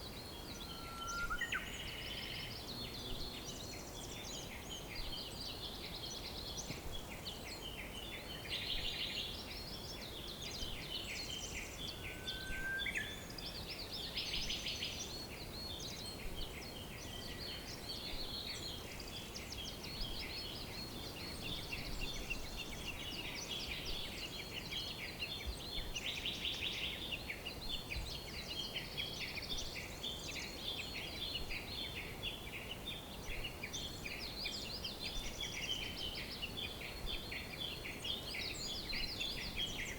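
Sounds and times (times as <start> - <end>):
steady low hiss: 0.0 - 39.9
birds chirping and trilling: 9.8 - 39.9.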